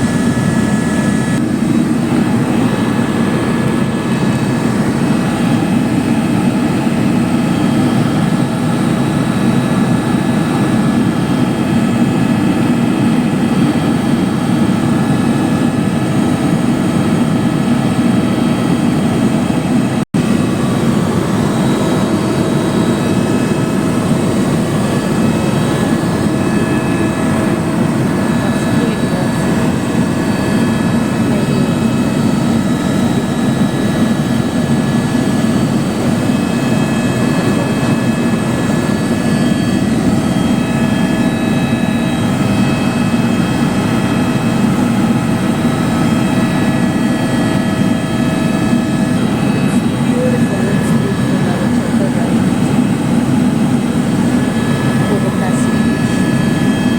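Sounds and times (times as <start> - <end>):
helicopter engine and rotor drone: 0.0 - 56.9.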